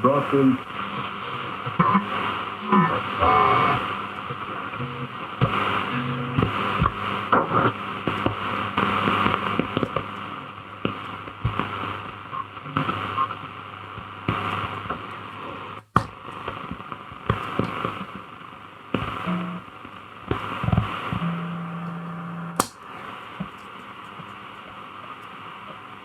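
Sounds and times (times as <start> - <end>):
radio static hiss with crackles: 0.0 - 26.0
sharp click: 22.6 - 22.8.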